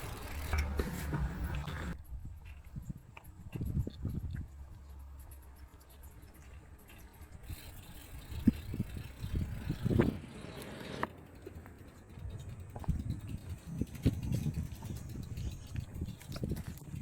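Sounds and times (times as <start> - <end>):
footsteps with low thuds: 0.6 - 7.4, 12.3 - 17.0.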